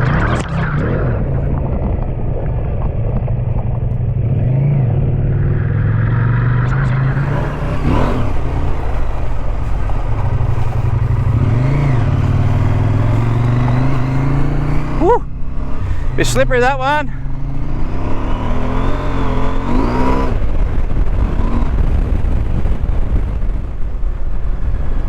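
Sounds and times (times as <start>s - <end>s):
motorcycle engine revving: 0.0s - 25.0s
wind and road noise: 0.0s - 25.0s.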